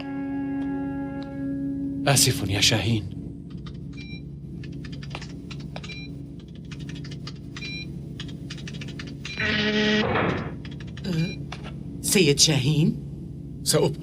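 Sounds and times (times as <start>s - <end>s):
steady low hum: 0.0s - 14.0s
rapid ticking clicks: 4.6s - 9.3s, 10.6s - 11.1s
held electronic tone: 9.3s - 10.5s.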